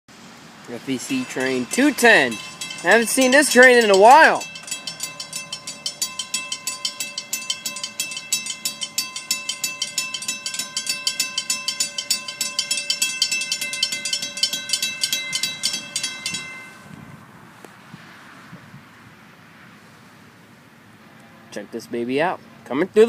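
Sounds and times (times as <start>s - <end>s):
crossing warning bell ringing: 0.7s - 17.0s.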